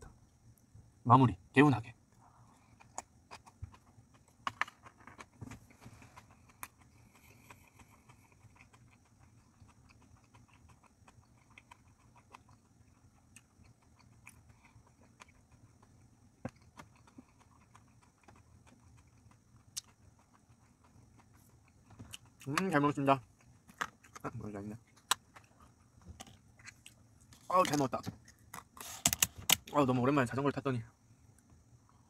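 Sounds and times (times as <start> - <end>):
closed-mouth chewing: 2.2 - 27.6.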